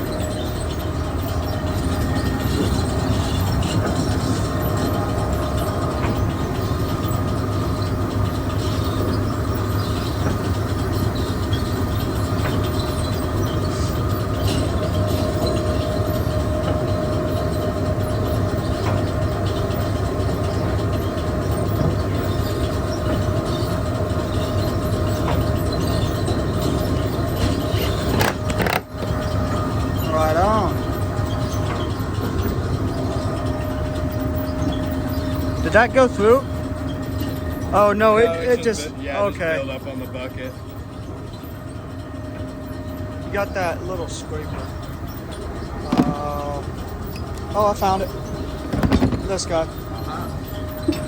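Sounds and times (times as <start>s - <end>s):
machine hum: 0.0s - 51.0s
belt and bucket clicks: 27.8s - 29.1s.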